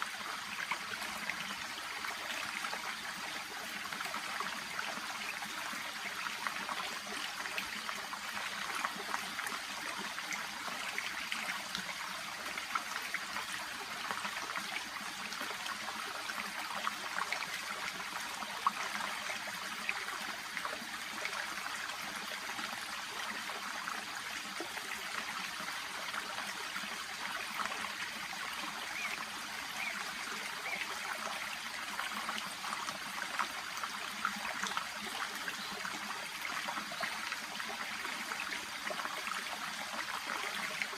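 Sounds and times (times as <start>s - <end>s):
brook babbling: 0.0s - 40.9s.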